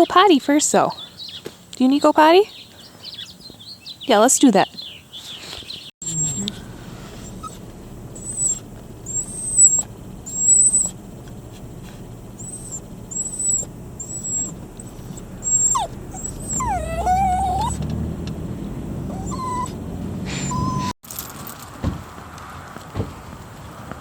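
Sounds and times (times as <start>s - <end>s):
dog whining: 6.0s - 18.1s, 19.0s - 21.0s.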